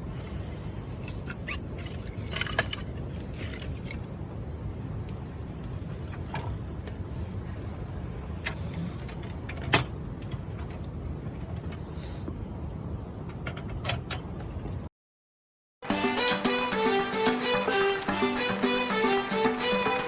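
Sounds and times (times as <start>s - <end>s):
campfire crackling and popping: 15.9s - 20.0s.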